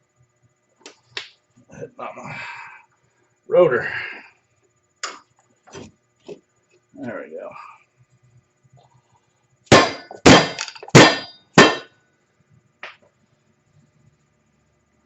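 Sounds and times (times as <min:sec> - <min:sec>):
hammer striking metal: 0:09.7 - 0:11.9.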